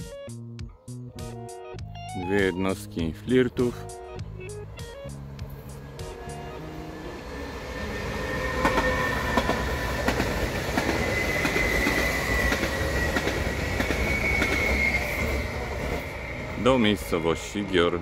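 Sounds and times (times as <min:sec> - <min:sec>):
train rumble with whine: 0:05.0 - 0:18.0
wheels clicking over rail joints: 0:08.5 - 0:16.1.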